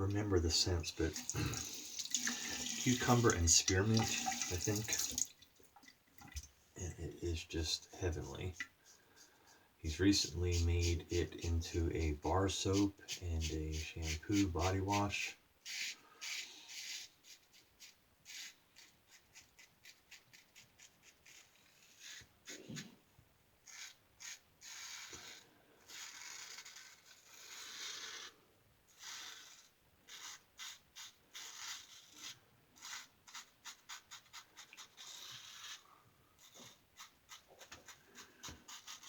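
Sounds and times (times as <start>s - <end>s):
razor scraping stubble: 9.9s - 17.1s, 23.7s - 35.8s, 36.4s - 39.0s.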